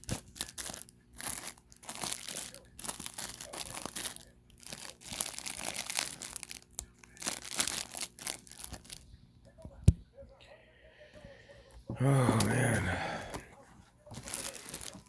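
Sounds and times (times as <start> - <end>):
snack packaging crinkling: 0.0 - 9.1, 14.0 - 15.0.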